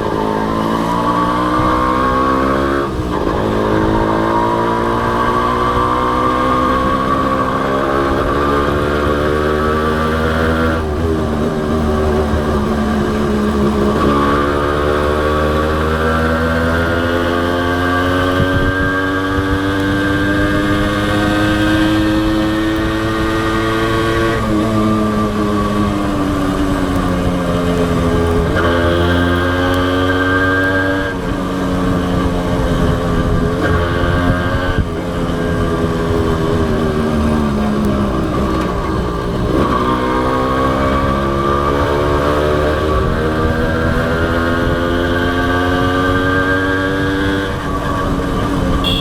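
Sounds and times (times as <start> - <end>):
motorcycle engine running: 0.0 - 49.0
road and wind rumble: 0.0 - 49.0.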